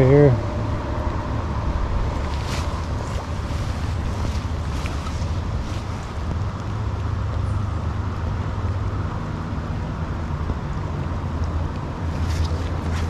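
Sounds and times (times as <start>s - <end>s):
low even rumble: 0.0s - 7.6s
river water rushing: 1.6s - 7.0s, 11.9s - 13.0s.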